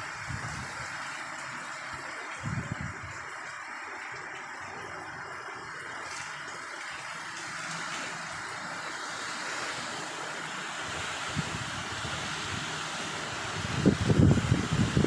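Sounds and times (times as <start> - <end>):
heavy rain downpour: 0.0 - 15.0.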